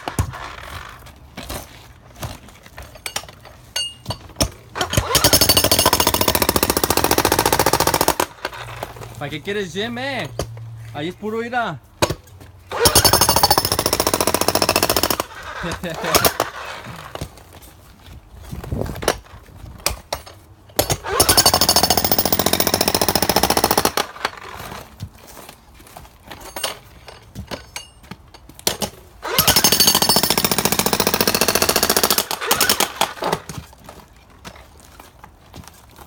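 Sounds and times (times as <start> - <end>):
jackhammer breaking concrete: 4.8 - 8.3, 12.7 - 17.2, 20.8 - 24.7, 29.2 - 33.5.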